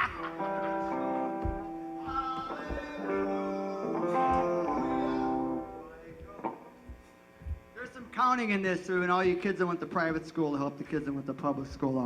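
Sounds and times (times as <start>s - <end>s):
guitar chords ringing: 0.0s - 7.6s
low thumps: 1.3s - 3.5s, 5.6s - 7.8s.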